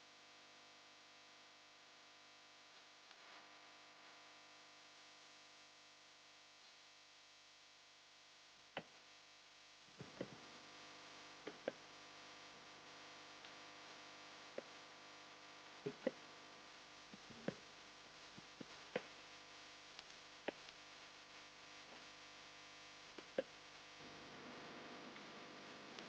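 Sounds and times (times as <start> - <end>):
faint steady hum: 0.0 - 26.0
soft ticks: 13.4 - 13.6, 14.5 - 14.8, 19.9 - 20.8.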